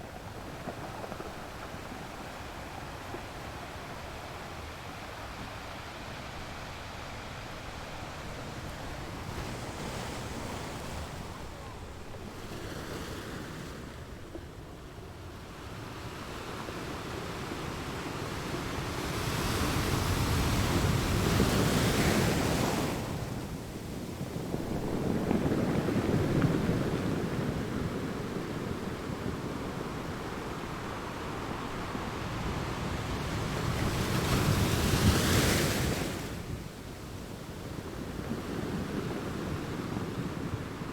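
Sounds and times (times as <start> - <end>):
sea waves breaking on shore: 18.0 - 40.9.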